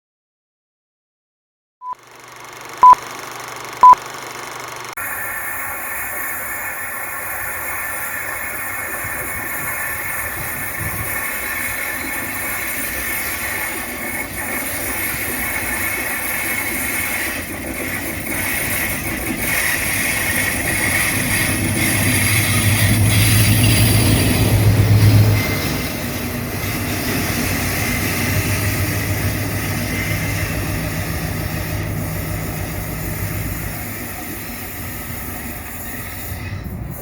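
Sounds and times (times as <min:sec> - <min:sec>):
diesel locomotives running: 0:02.0 - 0:37.0
short electronic beeps: 0:02.8 - 0:03.0, 0:03.8 - 0:04.0.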